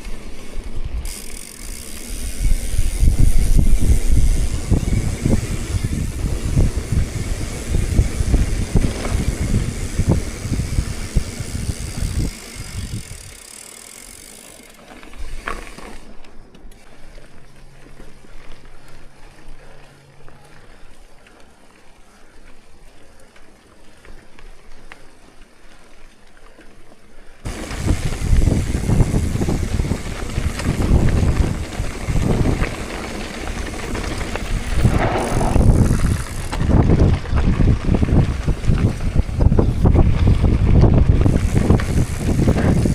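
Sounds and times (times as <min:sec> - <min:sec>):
wind buffeting microphone: 0:02.2 - 0:13.4, 0:27.4 - 0:42.9
rumble of moving ride: 0:27.5 - 0:42.9.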